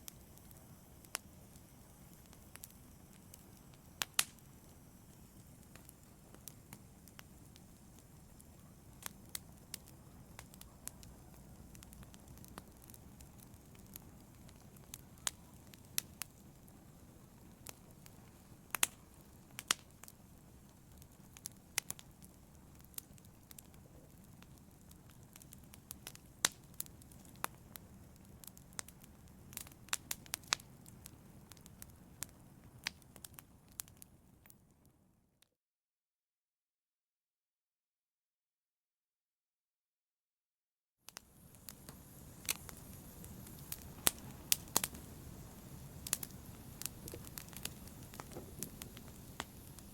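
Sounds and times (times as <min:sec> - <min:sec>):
low rumble of flames: 0:00.0 - 0:34.5, 0:41.2 - 0:49.9
wood fire crackling and popping: 0:00.0 - 0:34.6, 0:41.1 - 0:49.9.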